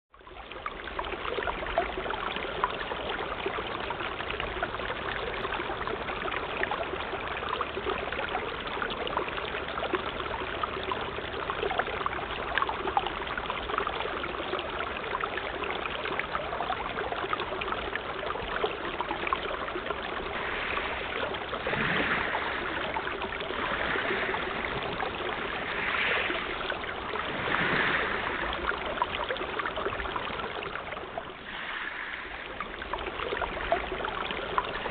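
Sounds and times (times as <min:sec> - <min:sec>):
sea water lapping: 0:17.5 - 0:34.9.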